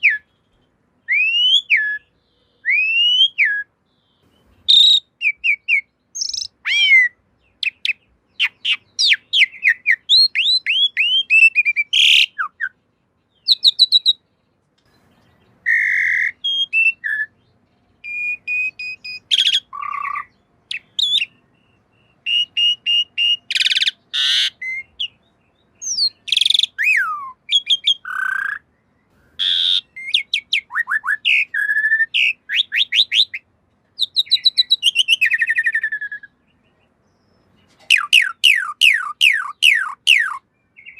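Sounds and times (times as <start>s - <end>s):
harsh scratchy bird calls: 0.0s - 40.9s
starling singing: 0.0s - 40.9s.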